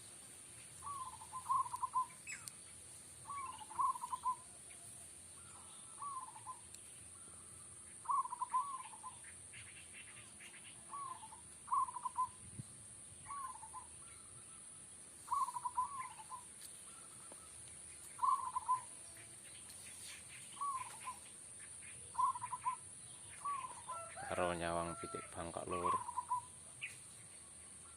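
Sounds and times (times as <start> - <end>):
dove cooing in trilled phrases: 0.8 - 2.4, 3.2 - 4.5, 5.7 - 6.6, 8.0 - 9.2, 10.8 - 12.4, 13.2 - 13.9, 15.3 - 17.3, 18.2 - 19.0, 20.6 - 21.2, 22.0 - 24.5, 25.7 - 26.5.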